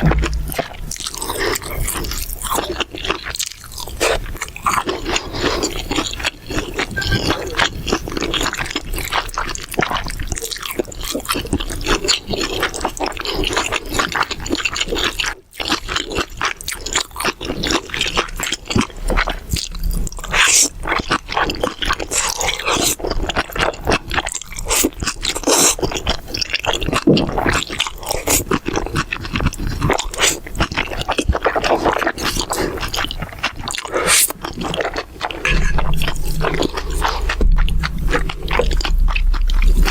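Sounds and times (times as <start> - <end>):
wet mouth noises: 0.0 - 11.8, 24.7 - 39.9
chewing and crunching: 0.0 - 39.9.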